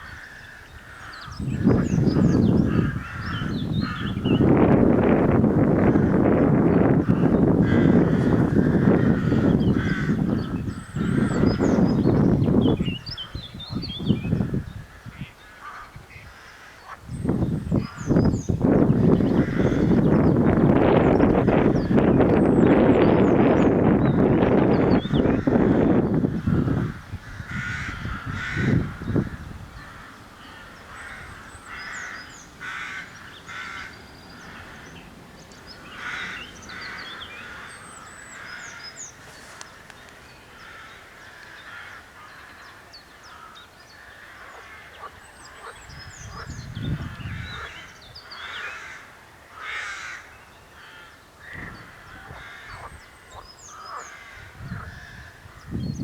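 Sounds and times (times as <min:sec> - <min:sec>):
crows cawing: 0:00.0 - 0:04.4, 0:05.9 - 0:11.8, 0:14.3 - 0:17.0, 0:19.0 - 0:20.4, 0:25.2 - 0:46.5, 0:47.1 - 0:55.6
small birds chirping: 0:00.0 - 0:04.6, 0:05.8 - 0:49.1.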